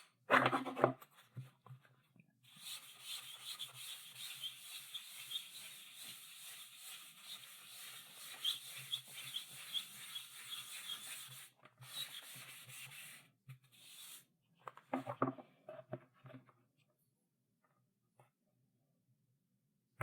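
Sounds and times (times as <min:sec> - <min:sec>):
chalk scratching on blackboard: 0:02.5 - 0:14.2.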